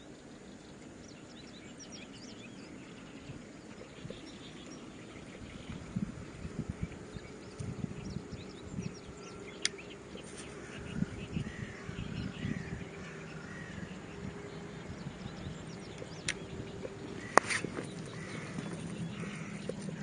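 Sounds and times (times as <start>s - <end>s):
birds calling: 0.0s - 20.0s
faint high bird chirps: 0.0s - 20.0s
sharp clicks: 9.5s - 10.3s, 15.9s - 20.0s.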